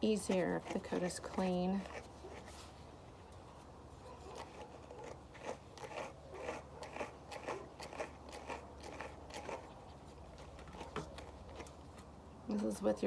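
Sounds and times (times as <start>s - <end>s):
brush scratching through dog hair: 0.0s - 2.9s.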